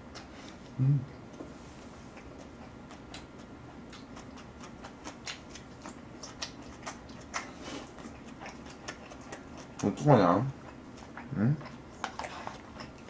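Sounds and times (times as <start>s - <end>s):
man chewing wetly: 0.0s - 1.4s, 2.0s - 13.0s.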